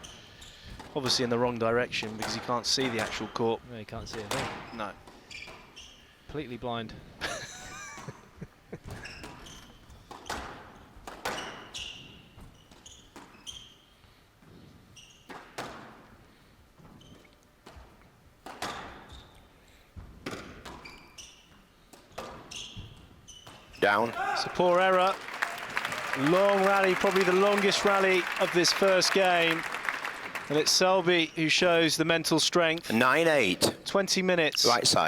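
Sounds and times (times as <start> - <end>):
shoe squeaks on court floor: 0.0 - 0.9, 4.3 - 6.2, 8.9 - 14.0, 14.6 - 15.6, 16.8 - 17.4, 18.6 - 19.5, 20.3 - 24.0.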